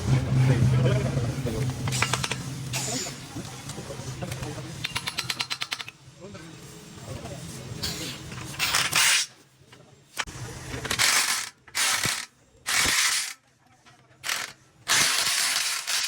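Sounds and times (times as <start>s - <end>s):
harsh metalworking bursts: 14.2s - 16.0s.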